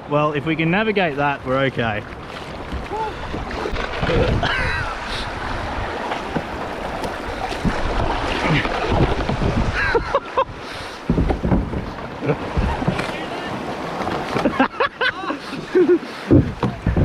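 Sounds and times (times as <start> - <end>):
river water rushing and splashing: 0.0 - 17.0
wind buffeting microphone: 0.4 - 13.0, 16.3 - 17.0
sharp knocks: 11.1 - 13.1.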